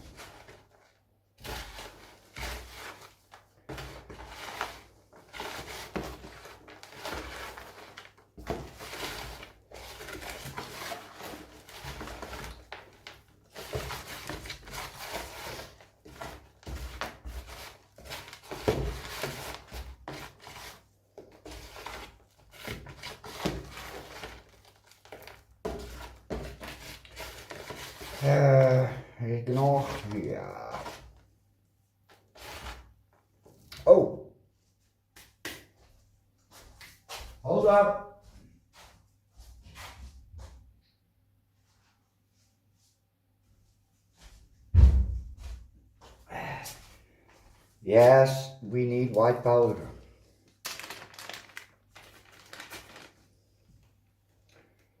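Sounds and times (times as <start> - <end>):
potting soil being stirred: 0.0 - 31.2.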